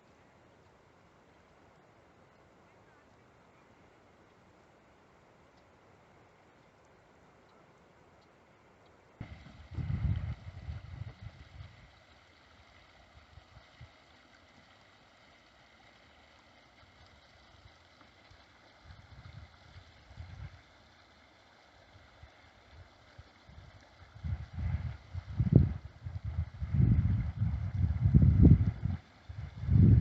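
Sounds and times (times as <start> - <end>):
wind buffeting microphone: 9.2 - 11.9, 18.9 - 20.6, 23.5 - 30.0.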